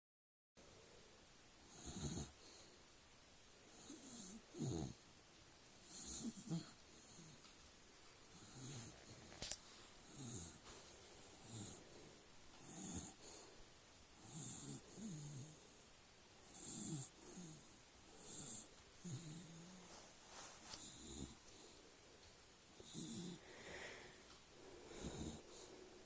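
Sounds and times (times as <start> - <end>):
dog snoring: 1.6 - 2.6, 3.7 - 5.0, 5.8 - 7.5, 8.3 - 9.3, 10.0 - 10.7, 11.4 - 12.0, 12.6 - 13.5, 14.2 - 15.8, 16.4 - 20.1, 20.7 - 21.7, 22.8 - 24.0, 24.8 - 25.8.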